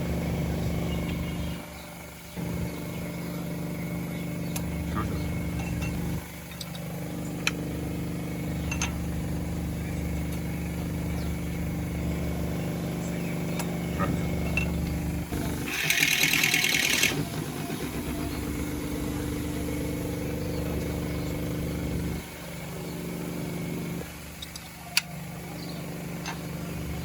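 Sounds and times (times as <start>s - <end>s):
engine humming: 0.0s - 27.0s
loud rattling hiss: 15.3s - 20.2s.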